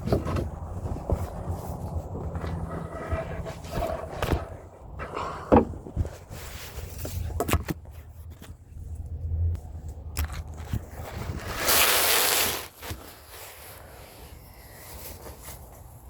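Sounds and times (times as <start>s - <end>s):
loud rustling scrape: 0.8s - 7.4s, 10.6s - 15.8s.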